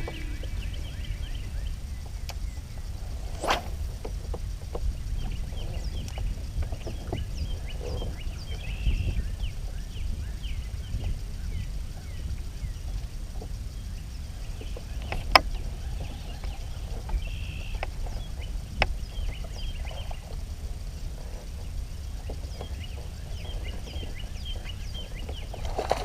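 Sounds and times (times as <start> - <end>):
steady low rumble: 0.0 - 25.7.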